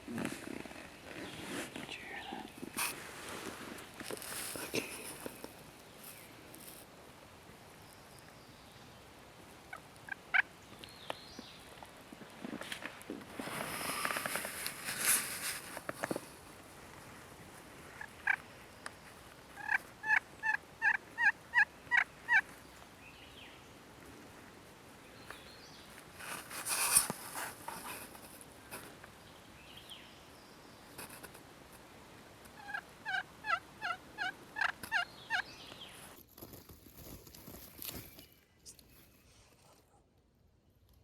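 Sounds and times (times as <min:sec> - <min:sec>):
turkey yelping: 0:19.6 - 0:22.4, 0:32.6 - 0:35.4.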